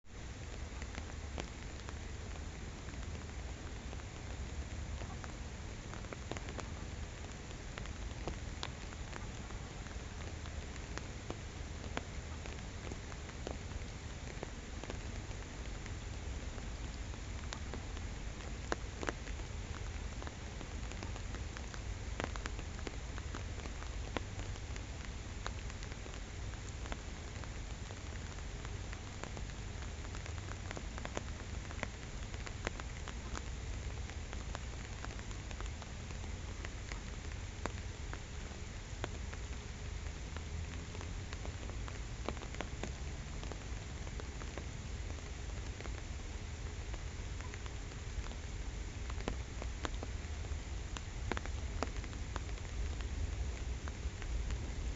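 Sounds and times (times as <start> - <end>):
rain falling on a pond: 0.0 - 54.9
raindrops ticking close by: 0.1 - 54.9.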